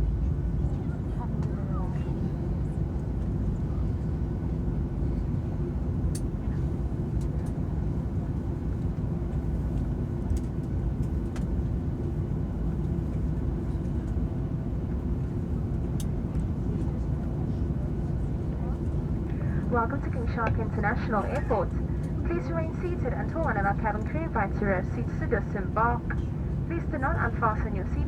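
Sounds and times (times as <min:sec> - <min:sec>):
jet engine rumble in cabin: 0:00.0 - 0:28.0.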